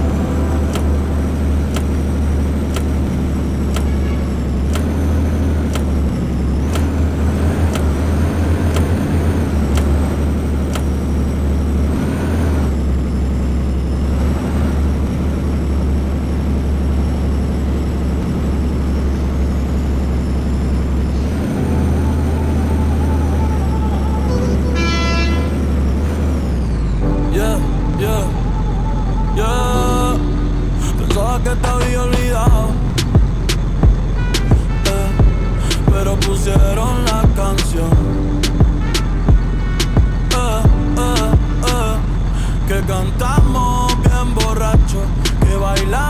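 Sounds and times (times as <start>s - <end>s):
bus engine droning: 0.0s - 46.0s
sharp clicks: 2.7s - 4.0s, 4.7s - 5.0s, 5.7s - 7.0s, 7.7s - 8.0s, 8.7s - 9.0s, 9.7s - 11.0s, 31.1s - 35.0s.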